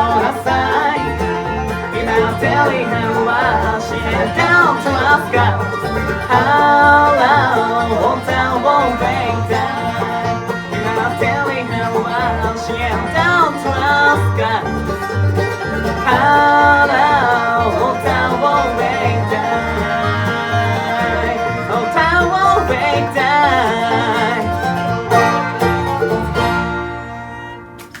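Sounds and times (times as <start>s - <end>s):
bluegrass band playing: 0.0s - 28.0s.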